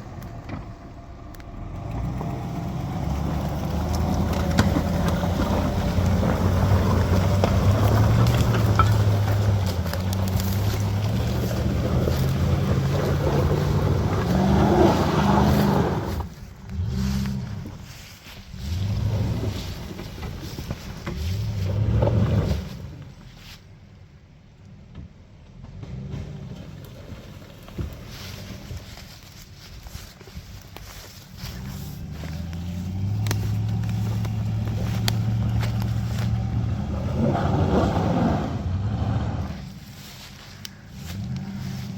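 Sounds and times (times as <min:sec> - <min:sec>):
pickup engine under load: 0:00.0 - 0:23.4, 0:24.7 - 0:41.9
sharp ticks and snaps: 0:32.4 - 0:36.4.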